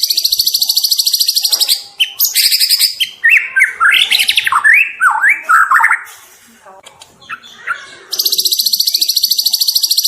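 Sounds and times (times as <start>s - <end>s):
bird singing trills and whistles: 0.0s - 6.1s, 7.2s - 10.0s.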